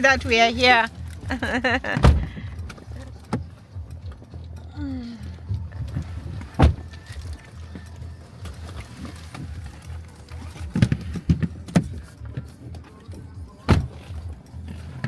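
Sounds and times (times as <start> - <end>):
low rumble inside car: 0.0 - 15.0
music playing: 0.0 - 15.0.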